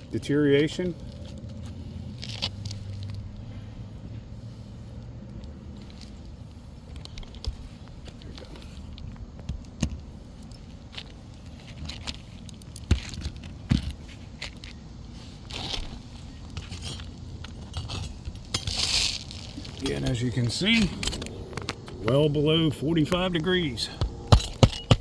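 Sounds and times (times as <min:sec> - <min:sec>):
clicks and scrapes on shingle roof: 0:05.8 - 0:22.1, 0:23.9 - 0:25.0
sharp knocks: 0:23.9 - 0:25.0.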